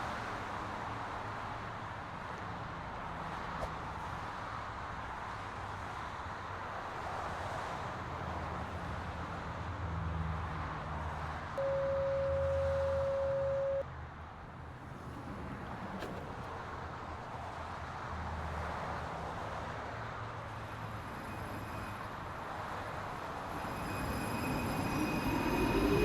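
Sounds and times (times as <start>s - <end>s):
train carriage hum and rumble: 0.0s - 26.0s
door-closing warning tone: 11.6s - 13.8s.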